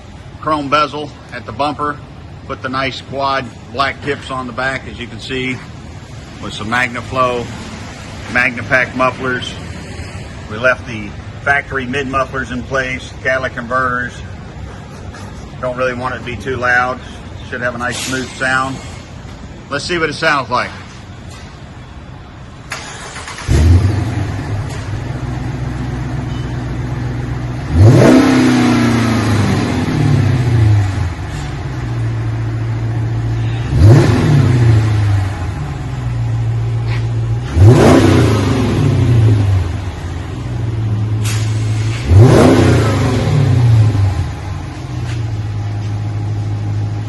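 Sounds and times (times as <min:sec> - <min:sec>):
car engine idling: 0:22.5 - 0:47.0
car engine starting: 0:22.5 - 0:47.0
car engine revving: 0:22.7 - 0:47.0.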